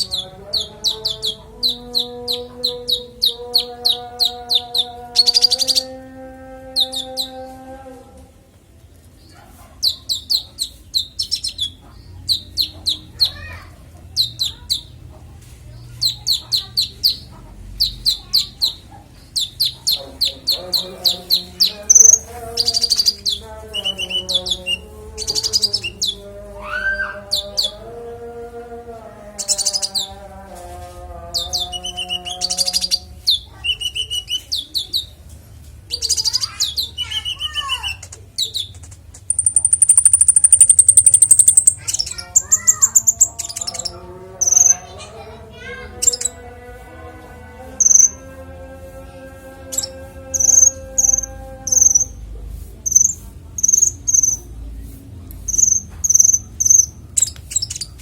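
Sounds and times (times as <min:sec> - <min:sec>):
songbird singing chirps and trills: 0:00.0 - 0:58.0.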